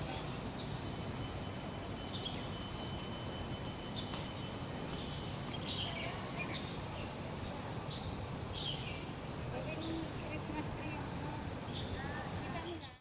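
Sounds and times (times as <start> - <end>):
city background noise: 0.0 - 13.0
thin steady high tone: 0.0 - 13.0
bird chirps: 0.5 - 7.2.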